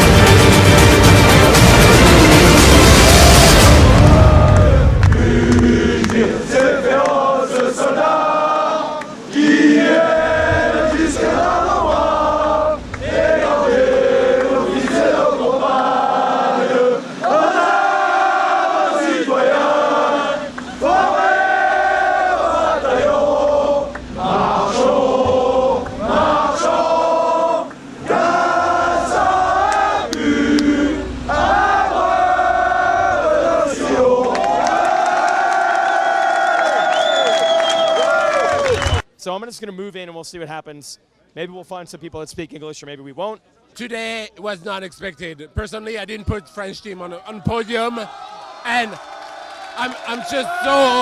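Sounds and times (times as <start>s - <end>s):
crowd singing in unison: 0.0s - 36.0s
group of voices chanting: 2.0s - 35.9s.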